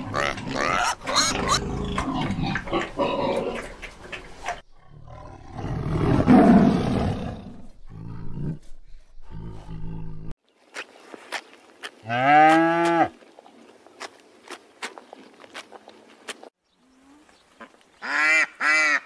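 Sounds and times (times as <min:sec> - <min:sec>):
pigs grunting and squealing: 0:00.0 - 0:08.6
tiger growls: 0:00.0 - 0:10.4
tiger roaring: 0:04.8 - 0:10.3.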